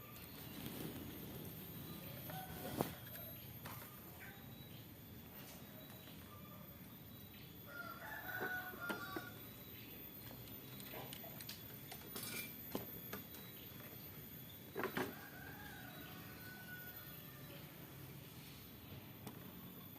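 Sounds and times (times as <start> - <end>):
faint bird calls: 0.0 - 6.6.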